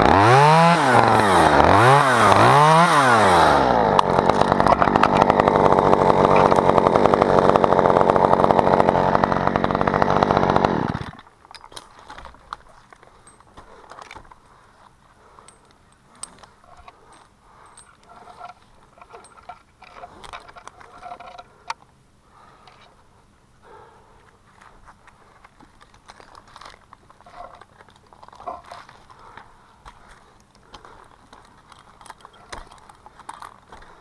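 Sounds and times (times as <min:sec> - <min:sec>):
chainsaw revving: 0:00.0 - 0:11.2
faint clicks and rustles: 0:11.1 - 0:34.0.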